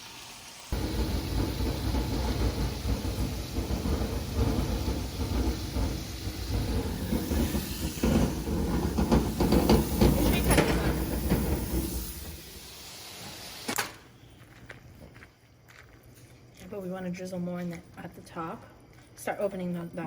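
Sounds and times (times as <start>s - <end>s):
food sizzling in hot oil: 0.0s - 13.8s.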